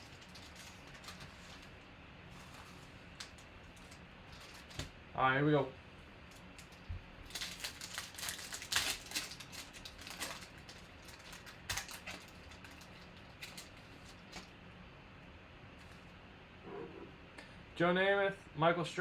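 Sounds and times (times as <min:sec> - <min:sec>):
pack wrappers crinkling and tearing: 0:00.0 - 0:04.9, 0:06.3 - 0:14.5
cards clicking and rustling: 0:06.4 - 0:14.5.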